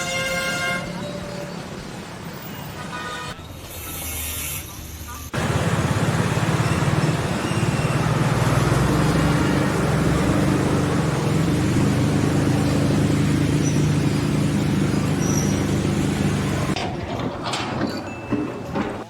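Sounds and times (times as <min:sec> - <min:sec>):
engine running: 0:05.4 - 0:16.8.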